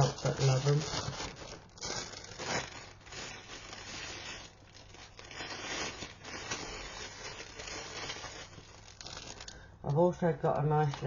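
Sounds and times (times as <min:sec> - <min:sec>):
plastic bags rustling and crinkling: 0:00.0 - 0:11.0
plastic tearing: 0:00.0 - 0:11.0.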